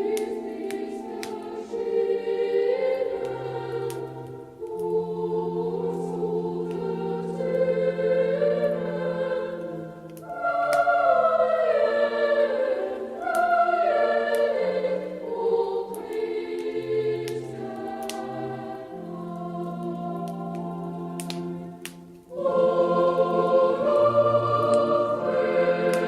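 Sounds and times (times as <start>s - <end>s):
choir singing slow song: 0.0s - 26.0s.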